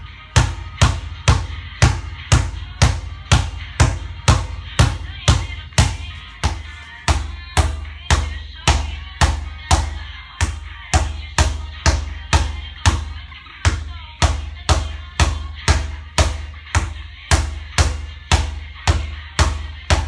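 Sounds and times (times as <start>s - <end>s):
steady drum beat: 0.0s - 13.1s.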